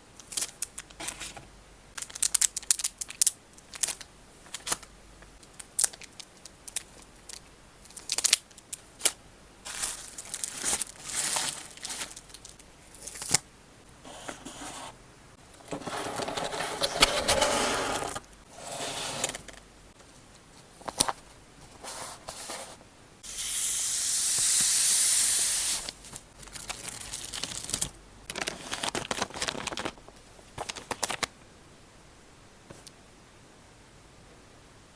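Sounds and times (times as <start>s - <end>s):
background hiss: 0.0s - 34.9s
plastic wrapping crinkling: 2.0s - 13.4s, 25.8s - 31.3s
plastic tearing: 25.7s - 30.0s.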